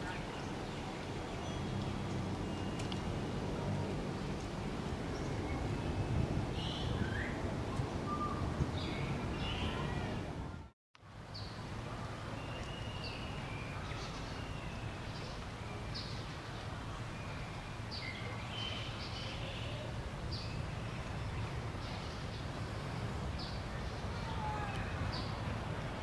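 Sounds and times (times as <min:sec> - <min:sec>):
small birds chirping: 0:05.1 - 0:10.3.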